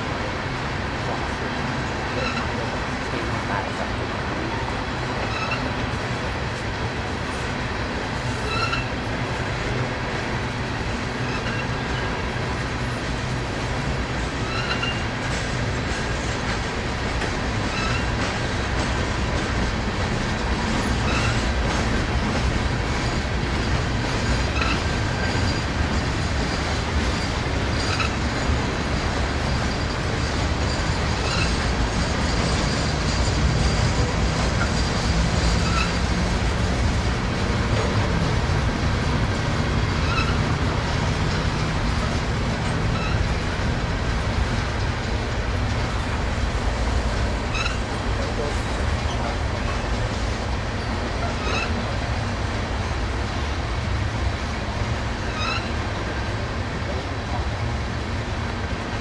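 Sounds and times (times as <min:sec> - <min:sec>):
train wheels rumbling on rail: 0:00.0 - 0:59.0
high-pitched wheel squeals: 0:02.2 - 0:02.6, 0:05.2 - 0:05.8, 0:08.4 - 0:09.0, 0:11.2 - 0:12.1, 0:14.4 - 0:15.1, 0:17.6 - 0:18.3, 0:20.8 - 0:21.5, 0:24.2 - 0:28.2, 0:29.5 - 0:36.1, 0:40.0 - 0:40.6, 0:42.9 - 0:43.4, 0:47.5 - 0:48.5, 0:50.8 - 0:52.0, 0:55.2 - 0:55.8.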